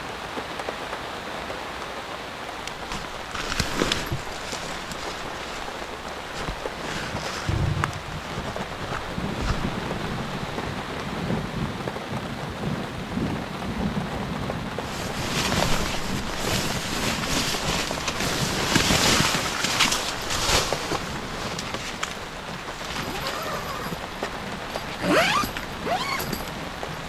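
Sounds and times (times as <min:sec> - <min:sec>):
heavy rain: 0:00.0 - 0:27.0
low rumble: 0:07.4 - 0:10.3.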